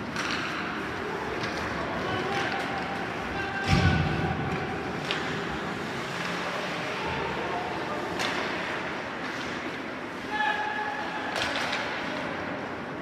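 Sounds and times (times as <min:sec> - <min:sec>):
stick or puck clacks: 0:00.0 - 0:00.8, 0:04.5 - 0:05.6, 0:08.1 - 0:09.8, 0:11.3 - 0:12.3
arena noise: 0:00.0 - 0:13.0.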